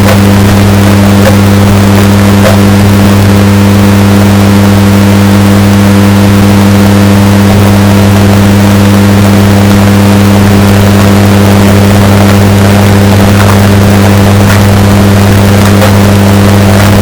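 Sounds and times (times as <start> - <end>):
distorted washing machine hum: 0.0 - 17.0.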